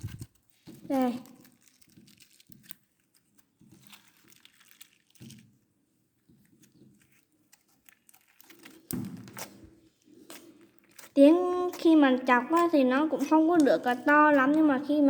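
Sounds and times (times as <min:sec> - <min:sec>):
slime crackling when pressed: 0:00.9 - 0:05.4, 0:10.2 - 0:15.0.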